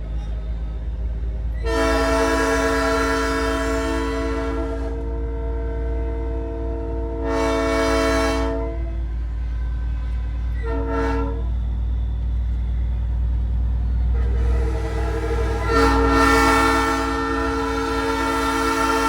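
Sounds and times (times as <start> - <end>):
train horn blasts: 1.6 - 9.1, 10.5 - 11.6, 14.1 - 19.0
truck engine rumble: 11.3 - 19.0.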